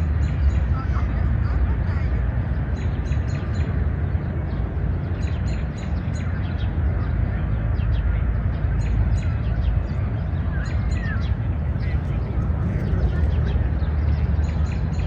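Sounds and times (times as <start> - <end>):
low background rumble: 0.0 - 15.0
small birds chirping: 0.0 - 15.0.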